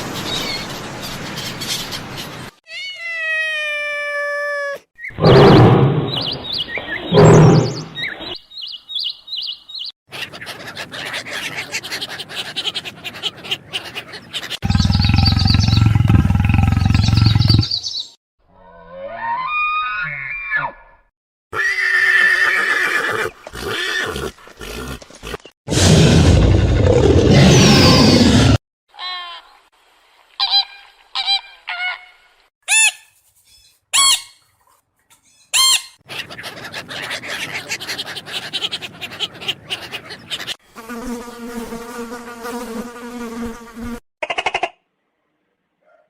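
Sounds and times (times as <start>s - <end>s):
loud rough animal call: 7.1s - 7.8s, 14.6s - 17.7s
pitched animal call: 7.1s - 7.9s, 10.1s - 17.7s
insect buzzing: 40.7s - 44.0s.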